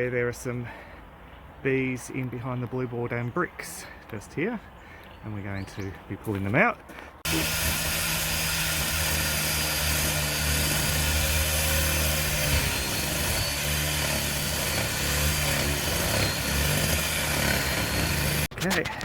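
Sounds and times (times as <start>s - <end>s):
power tool cutting bricks: 7.2s - 18.5s.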